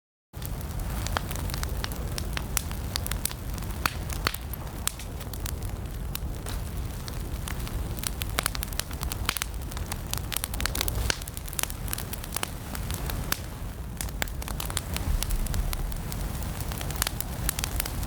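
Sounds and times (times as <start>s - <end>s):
low rumble of flames: 0.4s - 18.0s
wood fire crackling: 0.4s - 18.0s.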